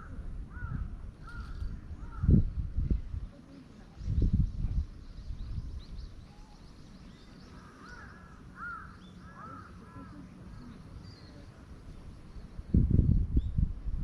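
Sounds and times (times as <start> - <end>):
bird calling: 6.1 - 11.5.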